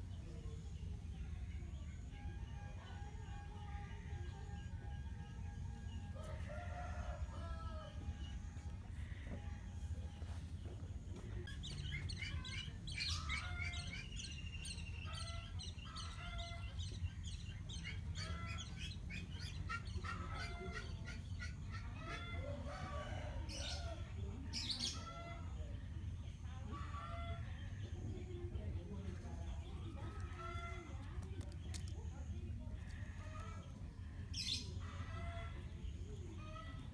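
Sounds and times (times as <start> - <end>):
low background rumble: 25.0 - 36.9.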